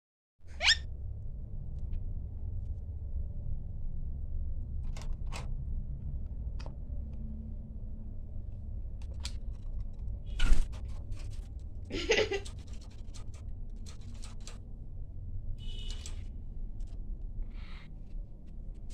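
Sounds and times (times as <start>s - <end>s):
low steady rumble: 0.5s - 18.9s.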